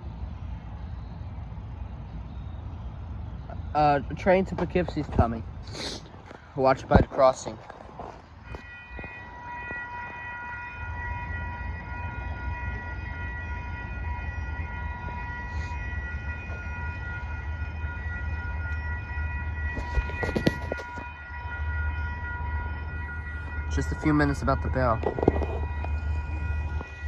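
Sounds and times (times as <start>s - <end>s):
steady high ringing tone: 6.6s - 27.0s
train rumbling past: 8.2s - 27.0s.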